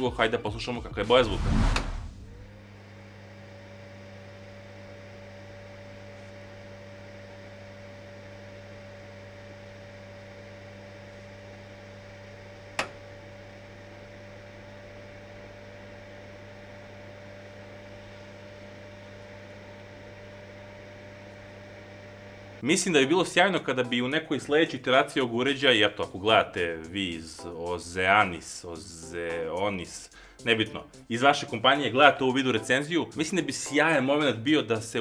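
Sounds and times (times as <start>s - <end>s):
blower fan humming: 7.0s - 35.0s
sharp click: 12.8s - 13.0s.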